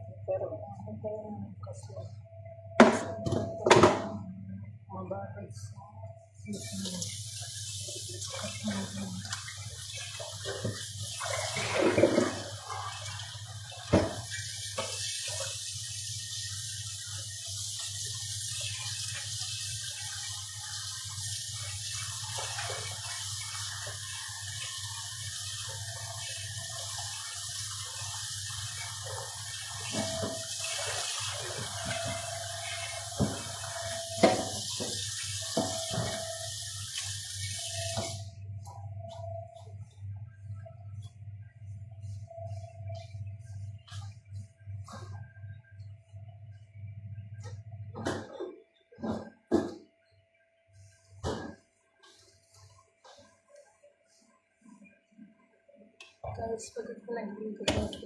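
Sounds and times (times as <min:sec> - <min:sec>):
water running from tap into sink: 0:06.5 - 0:38.3
objects clattering in sink: 0:10.4 - 0:13.1, 0:29.8 - 0:36.5.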